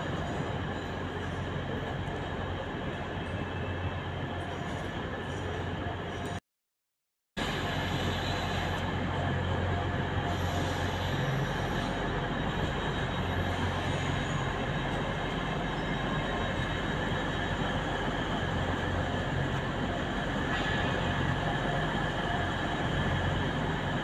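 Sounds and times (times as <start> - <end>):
train running noise with low hum: 0.0 - 6.4, 7.4 - 24.0
high wheel squeal: 10.2 - 19.2.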